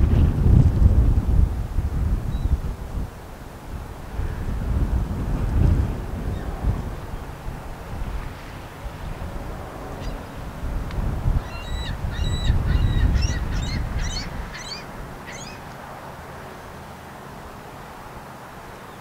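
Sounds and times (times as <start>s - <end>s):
wind rumble on microphone: 0.0s - 16.8s
bird calling: 10.0s - 10.2s, 11.4s - 15.8s.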